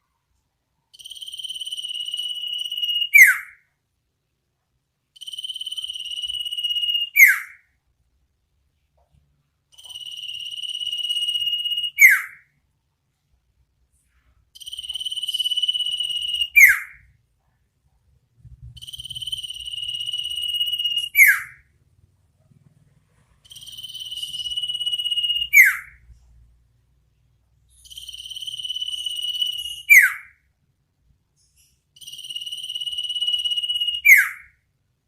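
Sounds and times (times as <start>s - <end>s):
bird trilled whistle call: 1.5s - 3.6s, 5.2s - 7.6s, 10.0s - 12.4s, 14.8s - 17.0s, 18.8s - 21.6s, 23.5s - 26.0s, 27.9s - 30.3s, 32.2s - 34.5s.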